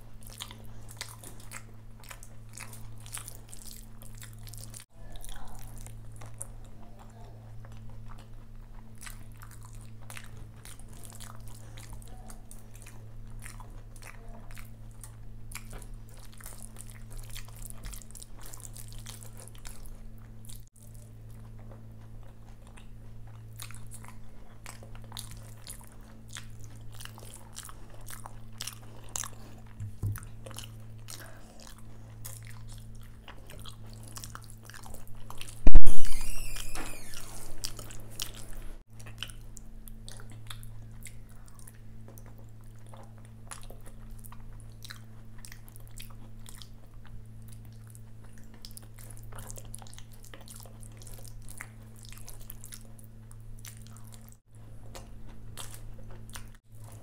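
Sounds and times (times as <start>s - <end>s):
chewing and crunching: 0.0s - 57.0s
low hum: 35.6s - 38.8s.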